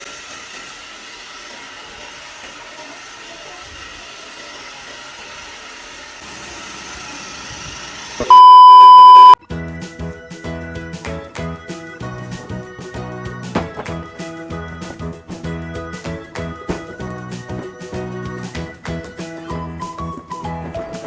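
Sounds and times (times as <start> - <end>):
electronic beep: 8.2 - 9.4
music: 9.4 - 21.0.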